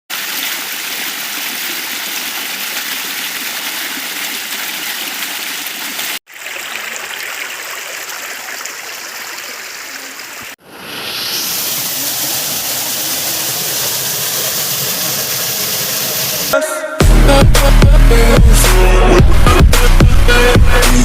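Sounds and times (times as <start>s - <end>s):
waterfall and stream rushing: 0.1s - 16.6s.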